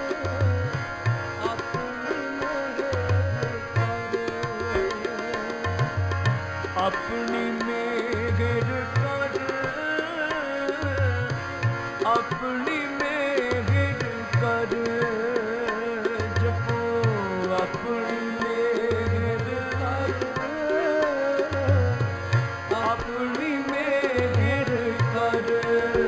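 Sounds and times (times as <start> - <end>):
tabla strokes: 0.0 - 26.0.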